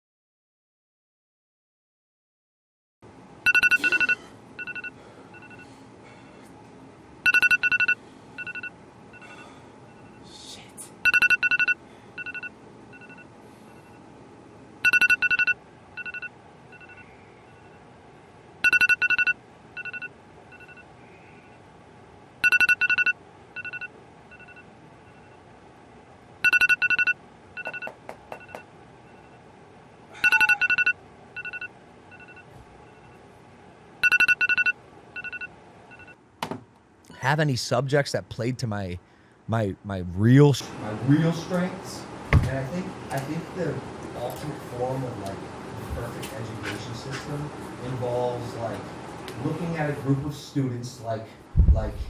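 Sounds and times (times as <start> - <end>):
electronic signal beeps: 3.5 - 5.6, 7.3 - 9.4, 11.0 - 13.2, 14.8 - 17.7, 18.6 - 20.9, 22.4 - 25.4, 26.4 - 29.4, 30.2 - 33.2, 34.0 - 36.2.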